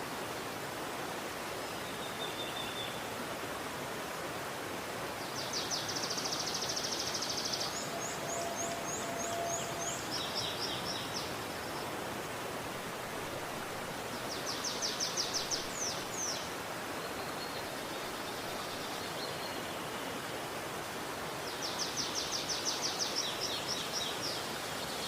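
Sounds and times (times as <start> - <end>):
river water flowing: 0.0 - 25.0
small bird singing: 5.4 - 11.3.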